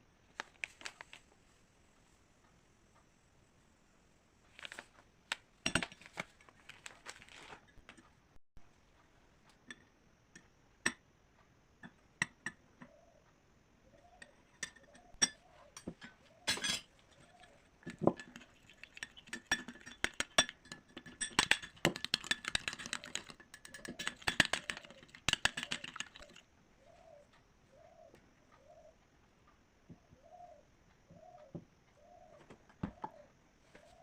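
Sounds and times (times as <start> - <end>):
spoon clinking against bowl: 14.2 - 26.4
pigeon cooing: 22.6 - 29.0, 30.1 - 34.0.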